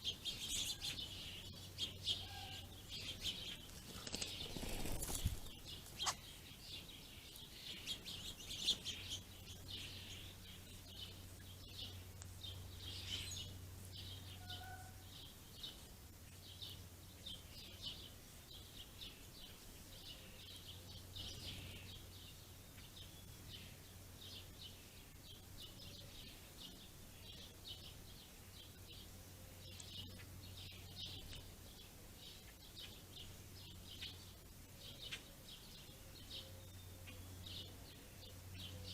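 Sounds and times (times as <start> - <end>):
faint low hum: 0.0 - 38.9
small songbirds chirping: 0.0 - 38.9.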